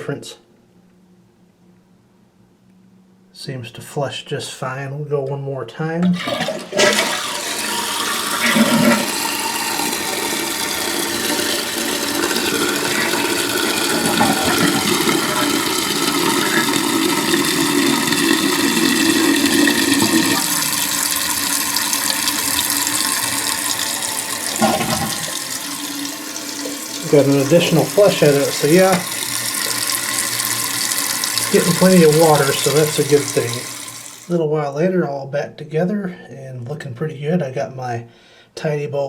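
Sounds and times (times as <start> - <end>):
toilet flushing: 6.0 - 34.4
water rushing into tank: 6.1 - 34.4.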